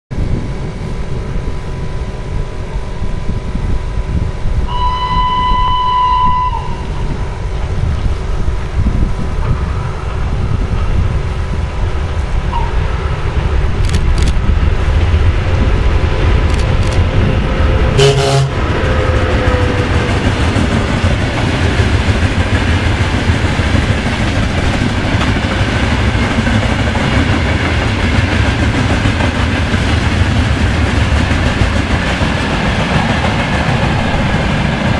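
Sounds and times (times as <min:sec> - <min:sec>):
train rumbling past: 0:00.1 - 0:34.9
locomotive whistle blasts: 0:04.7 - 0:07.0, 0:18.0 - 0:19.6.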